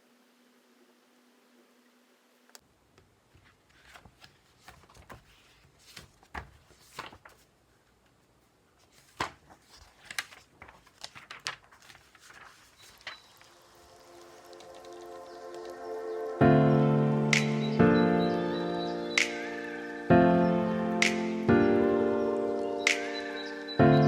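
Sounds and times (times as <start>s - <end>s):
paper rustling: 3.3s - 15.8s.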